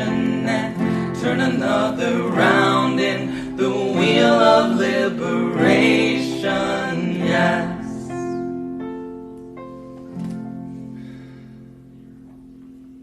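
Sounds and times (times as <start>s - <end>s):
voices singing: 0.0s - 8.7s
guitar: 0.0s - 13.0s.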